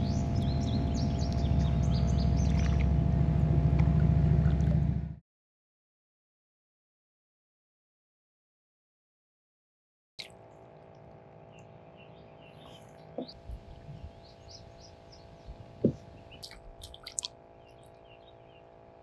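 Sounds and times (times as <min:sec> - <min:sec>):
small birds chirping: 0:00.0 - 0:02.8, 0:11.4 - 0:18.7.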